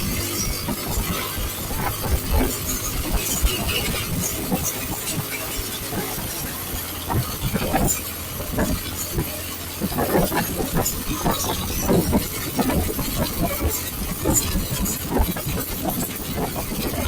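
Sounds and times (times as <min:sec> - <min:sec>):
motorcycle engine: 0:00.0 - 0:17.0
wind noise on microphone: 0:00.0 - 0:17.0.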